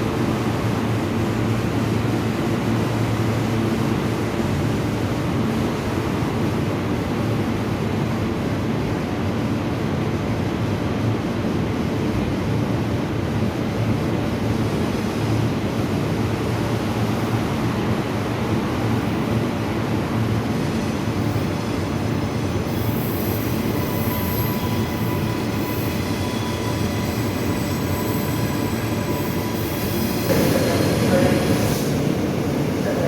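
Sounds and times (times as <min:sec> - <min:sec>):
high-pitched wheel squeals: 0:22.7 - 0:30.3.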